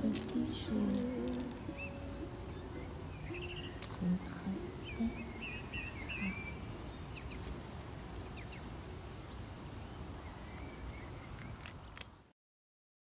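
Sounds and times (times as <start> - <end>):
steady background rumble: 0.0 - 11.2
bird chirps: 1.0 - 7.5.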